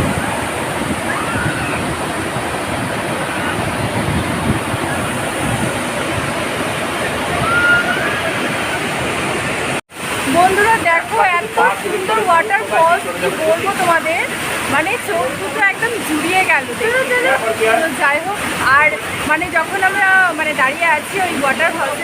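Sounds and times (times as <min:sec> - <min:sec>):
waterfall rushing and splashing: 0:00.0 - 0:22.0.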